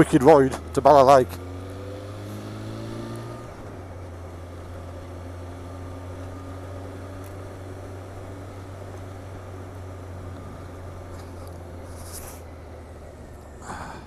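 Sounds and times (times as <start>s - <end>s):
motorcycle engine running: 0.0s - 13.7s
road and wind noise: 0.0s - 14.0s.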